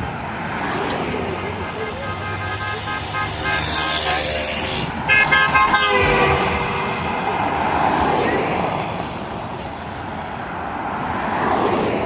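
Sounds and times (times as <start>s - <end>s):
car horn blasts: 1.4s - 7.4s.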